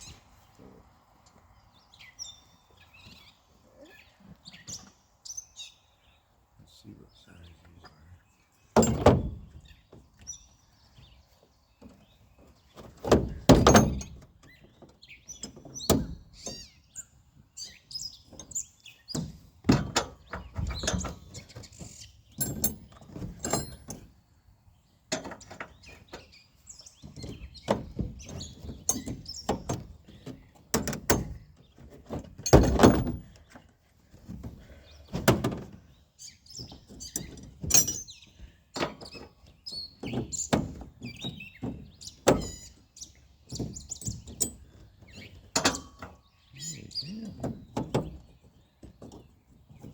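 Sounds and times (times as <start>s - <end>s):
metal tools clinking: 22.4s - 24.0s.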